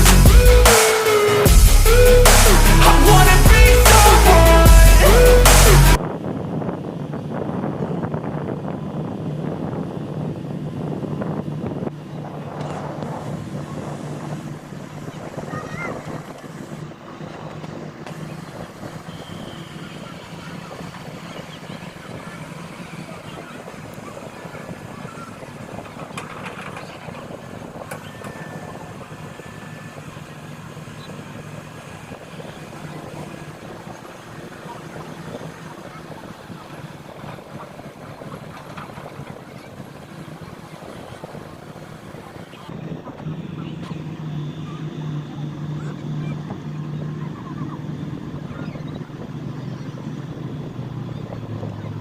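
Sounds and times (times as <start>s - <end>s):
heavy engine droning: 0.0s - 52.0s
wind buffeting microphone: 1.5s - 52.0s.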